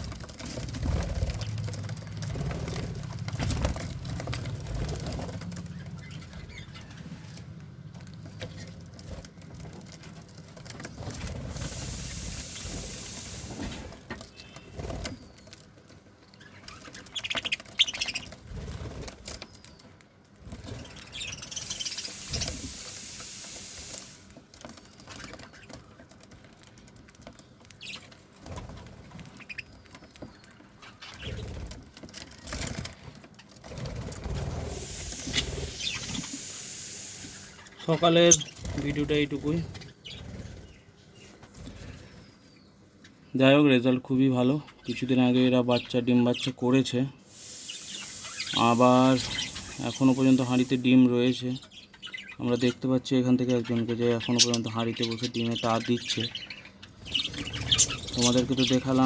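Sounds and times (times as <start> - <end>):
wings flapping: 0.0 - 7.4, 8.0 - 15.6, 16.4 - 19.8, 31.0 - 42.1, 47.3 - 50.8, 57.0 - 59.0
budgerigars chirping: 16.4 - 18.5, 20.8 - 24.2, 34.7 - 42.3, 47.3 - 59.0.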